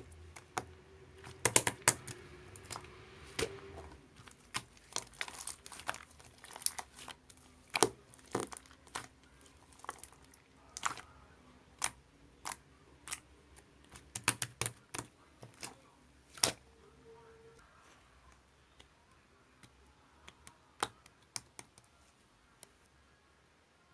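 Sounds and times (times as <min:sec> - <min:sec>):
slime squished by hand: 0:00.0 - 0:11.2, 0:13.9 - 0:16.6.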